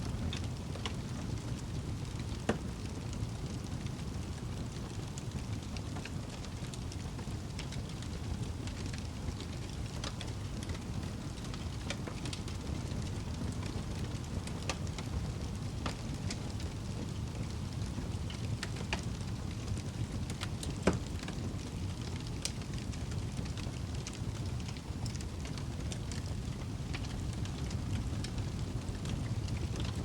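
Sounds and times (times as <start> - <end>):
fire crackling in a fireplace: 0.0 - 30.0.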